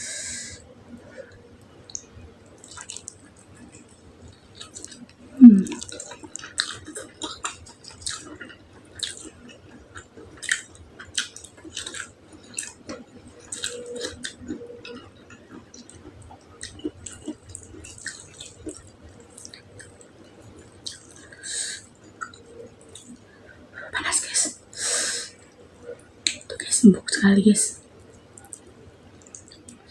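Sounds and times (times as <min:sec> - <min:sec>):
wet chewing and mouth smacks: 0:01.9 - 0:23.2, 0:28.1 - 0:29.8.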